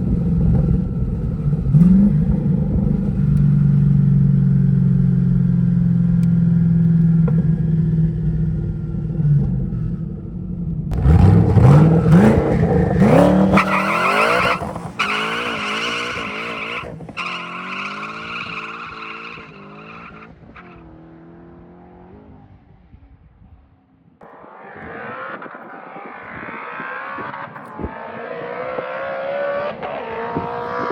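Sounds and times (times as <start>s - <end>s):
car engine revving hard: 10.9s - 20.2s.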